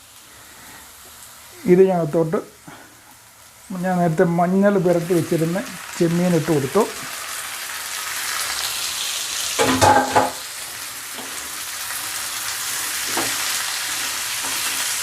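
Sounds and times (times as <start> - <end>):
prawns sizzling in a pan: 0.0 - 15.0.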